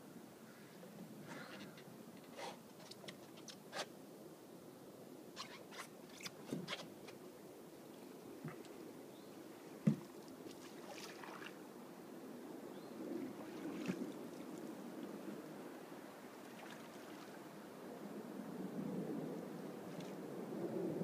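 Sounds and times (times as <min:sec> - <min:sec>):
water lapping around boat: 0:09.6 - 0:11.6, 0:13.3 - 0:15.2, 0:16.3 - 0:17.5
knocks on boat: 0:09.8 - 0:10.1.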